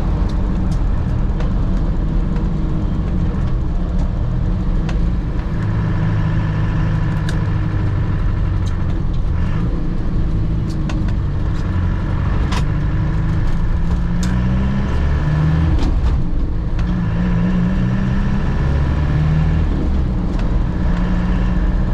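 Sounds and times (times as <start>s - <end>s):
car engine running inside cabin: 0.0s - 21.9s.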